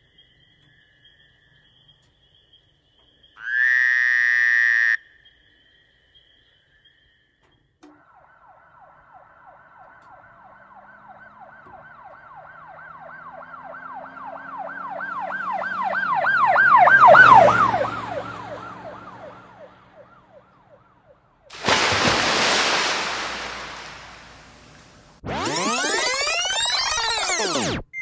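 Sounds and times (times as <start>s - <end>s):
emergency siren yelping: 7.9s - 21.1s, 25.2s - 27.8s
loud rushing noise: 21.6s - 25.1s.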